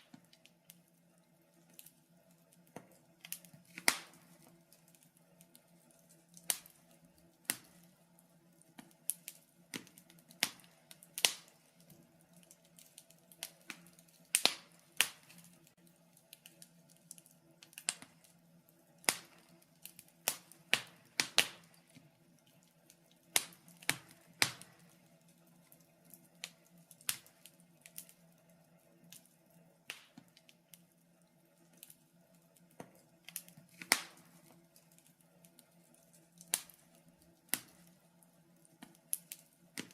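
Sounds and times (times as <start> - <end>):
faint steady low hum: 0.0 - 39.9
wood fire crackling and popping: 0.0 - 39.9.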